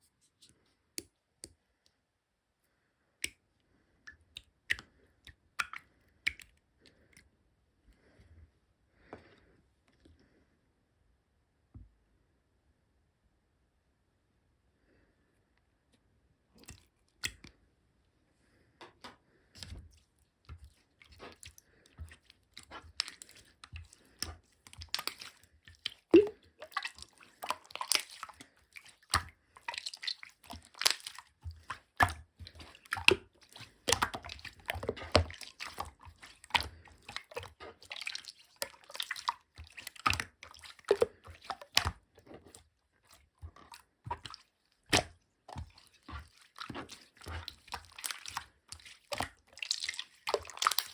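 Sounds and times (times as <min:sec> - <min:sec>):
slime squished by hand: 0:19.6 - 0:50.9.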